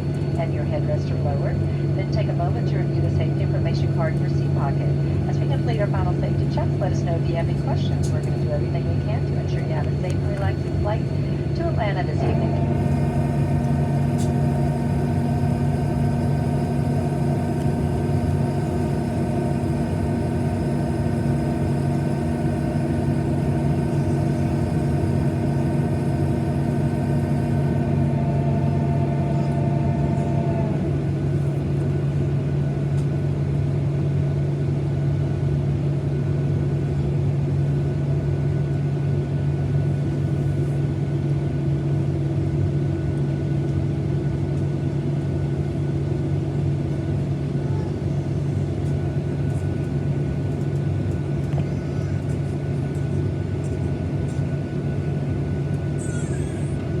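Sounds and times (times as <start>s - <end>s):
airliner cabin drone: 0.0s - 57.0s
whining tones: 11.2s - 31.2s.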